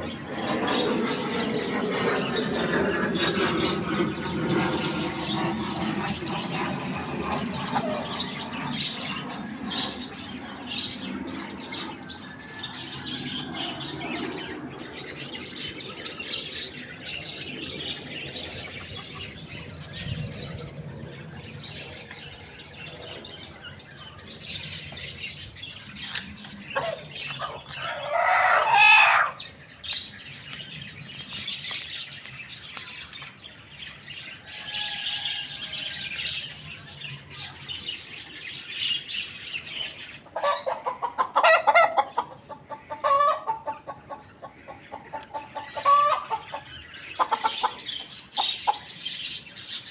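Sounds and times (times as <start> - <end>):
small birds chirping: 0.0 - 49.9
loud bird squawk: 26.8 - 29.4.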